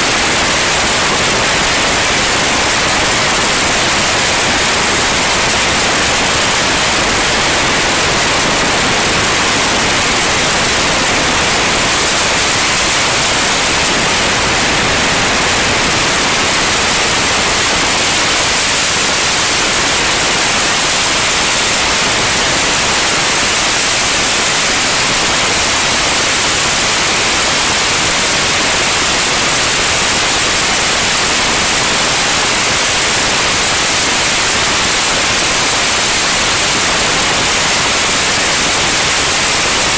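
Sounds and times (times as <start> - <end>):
loud steady hiss: 0.0 - 39.9.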